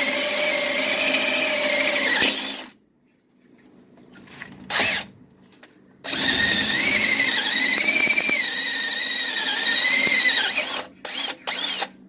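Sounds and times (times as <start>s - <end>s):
electric drill boring into metal: 6.1s - 11.9s.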